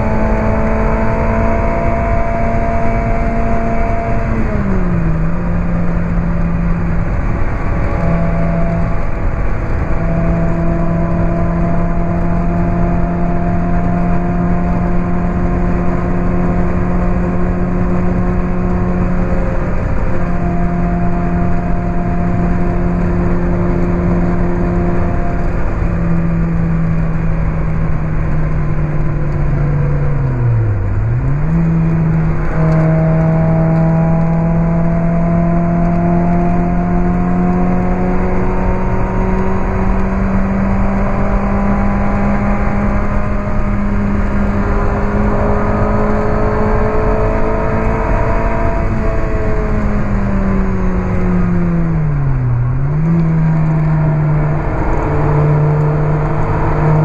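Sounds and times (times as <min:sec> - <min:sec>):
car engine revving hard: 0:00.0 - 0:57.0
rushing noise: 0:49.8 - 0:57.0.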